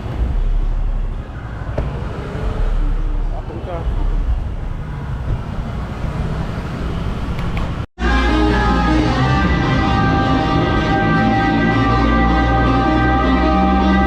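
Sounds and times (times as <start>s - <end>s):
motorbike road noise: 0.0s - 14.0s
background music with held notes: 8.0s - 14.0s.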